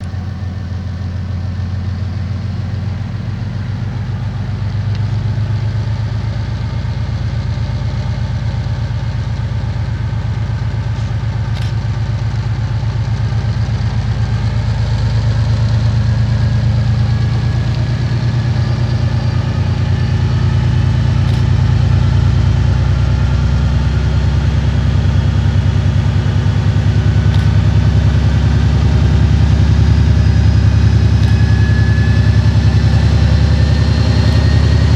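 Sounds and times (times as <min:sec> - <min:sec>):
diesel locomotive engine throbbing: 0:00.0 - 0:34.9
engine whine rising: 0:14.0 - 0:34.9.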